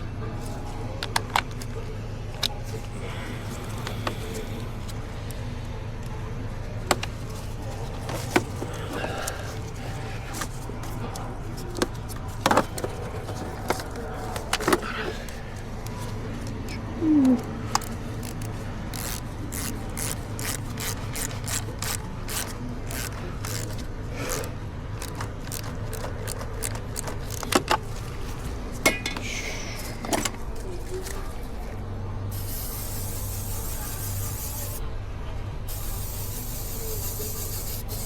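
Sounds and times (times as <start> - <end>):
hand tools clicking on metal: 17.7 - 27.8
aerosol spray hissing: 32.3 - 34.8, 35.7 - 38.0.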